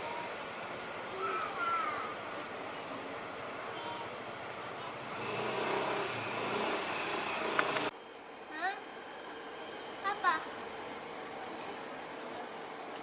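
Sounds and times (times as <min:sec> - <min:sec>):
faint voices: 0:00.0 - 0:05.2
high-pitched insect drone: 0:00.0 - 0:13.0.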